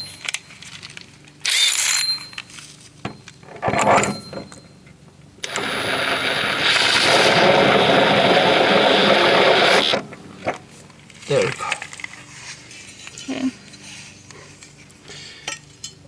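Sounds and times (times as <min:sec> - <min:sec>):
motor running: 0:05.4 - 0:10.6
scraping handling noises: 0:10.1 - 0:15.0.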